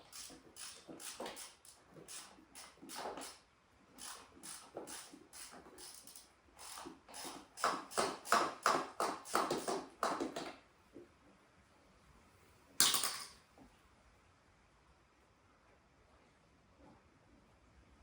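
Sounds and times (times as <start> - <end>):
ratchet wrench clicking: 0.0 - 3.4, 4.0 - 8.4.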